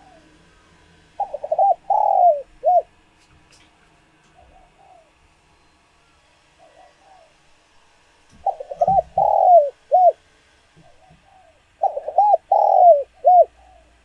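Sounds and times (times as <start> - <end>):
dove cooing: 0.0 - 3.0, 4.3 - 5.4, 6.6 - 7.5, 8.3 - 10.2, 10.8 - 14.0.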